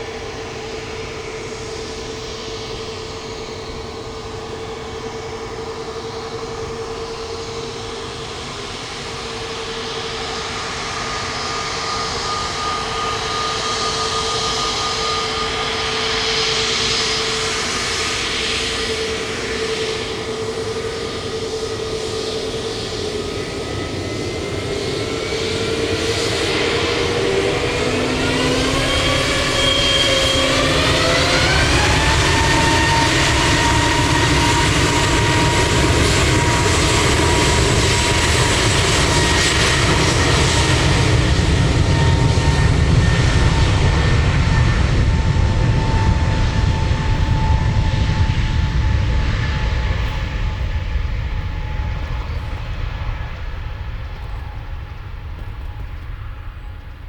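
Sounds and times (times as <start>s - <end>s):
jet engines whining: 0.0s - 57.0s
deep engine rumble: 34.7s - 57.0s.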